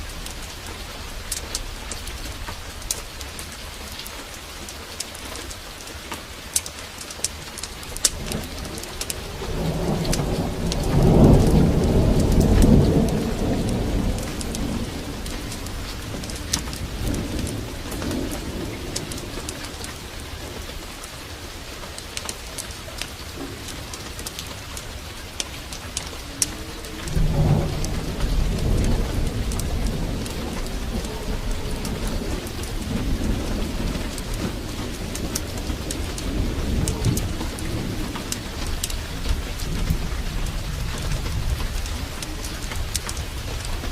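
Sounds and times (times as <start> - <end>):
heavy rain falling: 0.0 - 43.9
thunder rolling: 7.9 - 20.9, 22.6 - 43.9.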